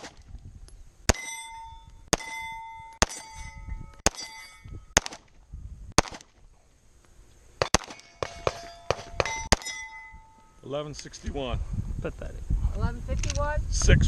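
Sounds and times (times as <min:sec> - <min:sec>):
steel plate ringing: 0:01.1 - 0:05.0, 0:07.6 - 0:11.0
pistol shots: 0:03.0 - 0:03.4, 0:04.0 - 0:04.4, 0:05.0 - 0:05.3, 0:06.0 - 0:06.4, 0:07.6 - 0:10.0.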